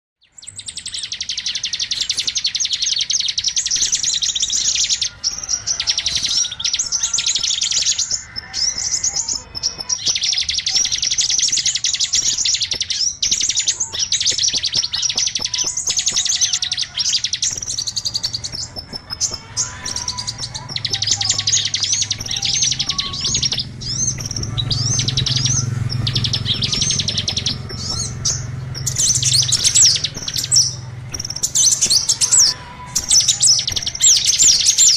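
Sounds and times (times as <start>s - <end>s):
songbirds chirping and trilling: 0.2s - 34.9s
low hum: 17.3s - 34.8s.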